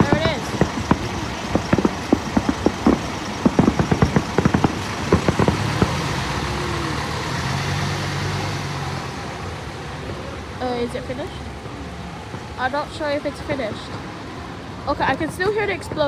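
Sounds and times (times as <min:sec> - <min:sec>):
fireworks bangs and crackles: 0:00.0 - 0:08.6
vehicle engine humming: 0:00.0 - 0:16.0.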